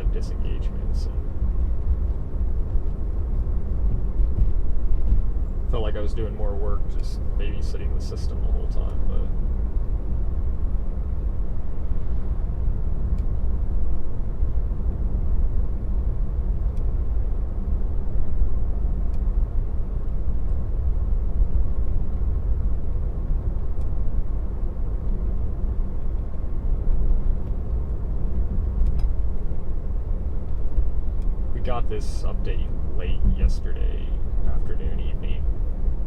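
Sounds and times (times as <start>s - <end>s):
tyre and road rumble: 0.0s - 15.2s.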